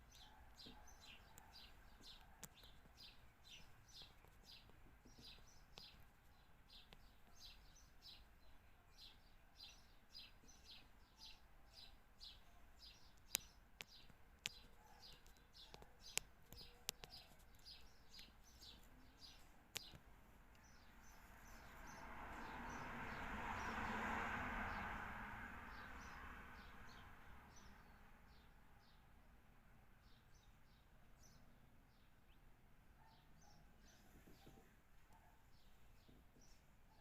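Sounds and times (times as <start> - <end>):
small bird chirping: 0.0 - 23.2.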